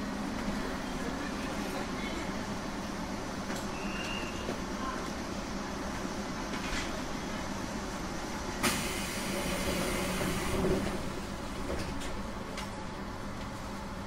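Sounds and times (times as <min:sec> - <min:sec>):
electric train rumbling: 0:00.0 - 0:14.0.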